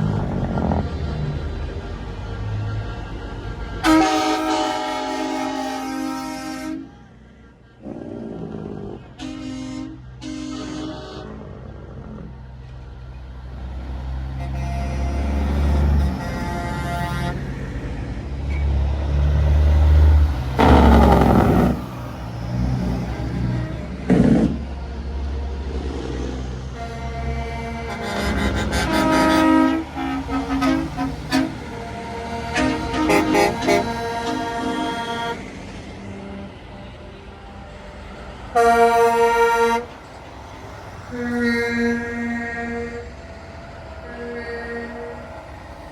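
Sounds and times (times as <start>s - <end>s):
trucks driving slowly past: 0.0s - 45.9s
loud horn blast: 3.8s - 7.0s, 9.0s - 11.6s, 14.2s - 17.7s, 18.4s - 24.7s, 26.6s - 37.7s, 38.5s - 40.1s, 41.0s - 43.4s, 44.0s - 45.6s.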